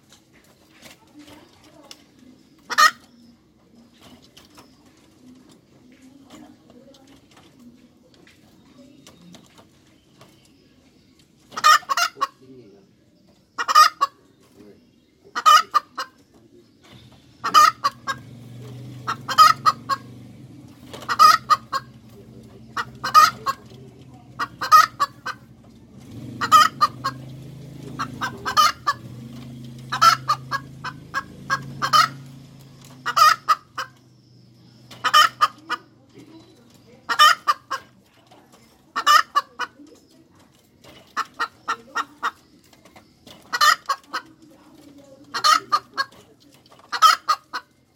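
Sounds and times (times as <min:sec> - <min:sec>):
hen cackling: 0:02.6 - 0:03.1, 0:11.5 - 0:12.4, 0:13.6 - 0:14.2, 0:15.3 - 0:16.2, 0:17.2 - 0:20.2, 0:20.8 - 0:34.0, 0:34.8 - 0:36.2, 0:37.0 - 0:38.0, 0:38.9 - 0:39.8, 0:41.1 - 0:42.5, 0:43.4 - 0:44.4, 0:45.3 - 0:46.2, 0:46.8 - 0:47.8.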